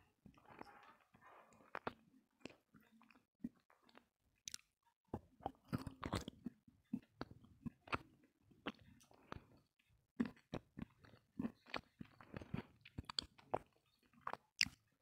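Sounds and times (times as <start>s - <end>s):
person biting and chewing clay: 3.5s - 4.7s, 10.2s - 14.8s.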